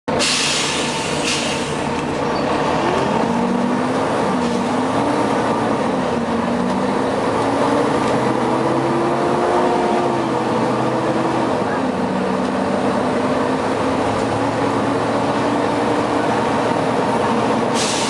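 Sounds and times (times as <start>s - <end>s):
bus engine drone: 0.0s - 18.0s
air brake hiss: 0.2s - 1.9s, 17.7s - 18.0s.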